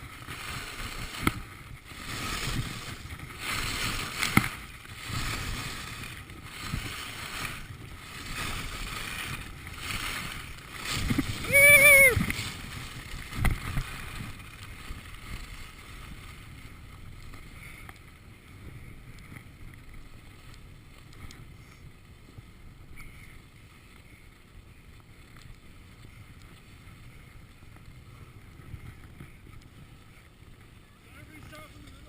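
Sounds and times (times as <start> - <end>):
wind buffeting microphone: 0.0 - 23.6, 25.6 - 32.0
faint clicks: 20.4 - 21.4.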